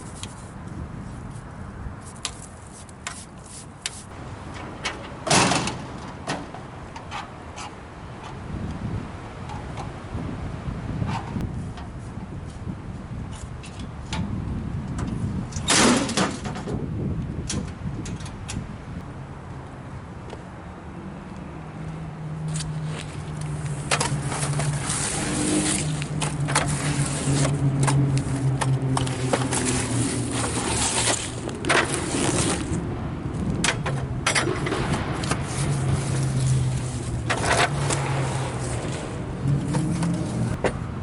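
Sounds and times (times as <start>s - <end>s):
knocks and scrapes of wood and metal: 0.0s - 8.4s, 11.0s - 16.8s, 22.4s - 40.9s.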